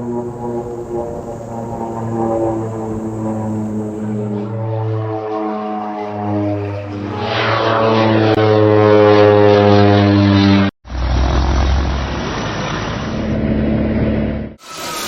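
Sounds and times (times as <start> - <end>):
rough deep engine noise: 0.0 - 4.6, 10.9 - 14.6
propeller aircraft engine passing: 0.0 - 14.6.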